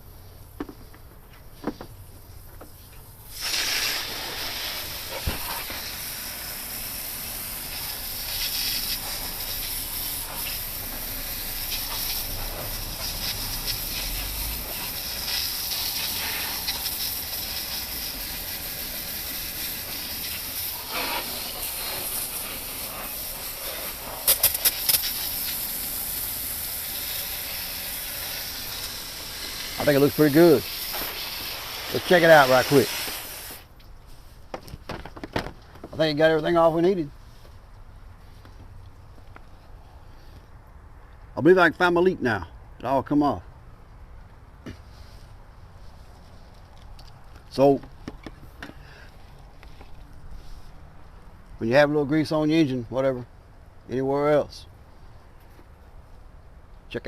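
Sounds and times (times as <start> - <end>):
water spraying onto engine: 3.0 - 33.8.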